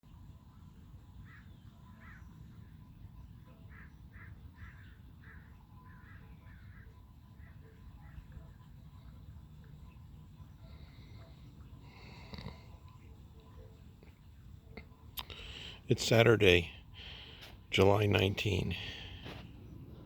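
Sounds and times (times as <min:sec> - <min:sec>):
bird calling: 0:01.2 - 0:20.0
steady low rumble: 0:07.4 - 0:20.0.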